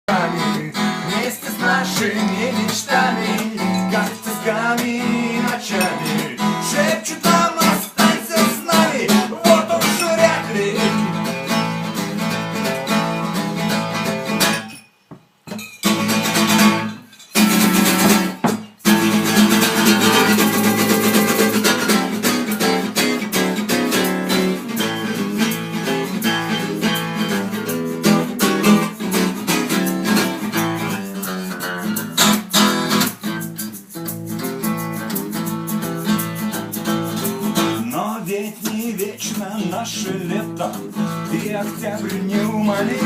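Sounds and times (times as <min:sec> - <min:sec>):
acoustic guitar strumming: 0:00.1 - 0:43.0.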